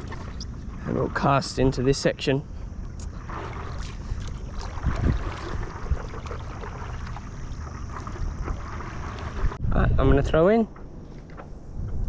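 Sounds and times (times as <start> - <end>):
wind rumbling on microphone: 2.6 - 12.0.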